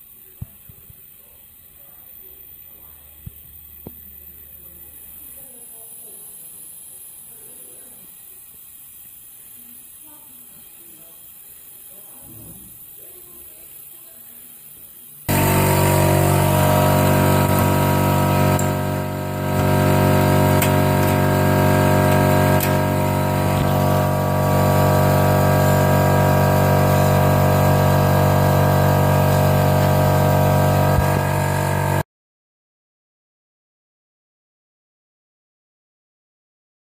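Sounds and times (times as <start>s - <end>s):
motor running steadily: 15.3s - 32.0s.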